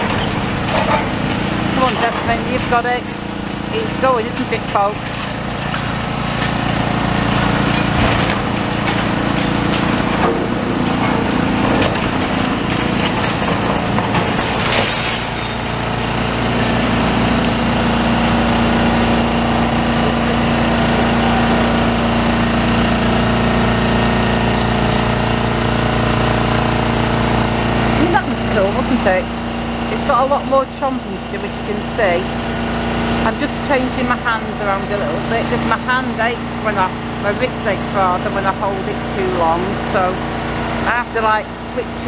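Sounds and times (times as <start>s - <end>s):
concrete breaking and debris clattering: 0.0s - 25.1s
diesel engine running: 0.0s - 42.0s.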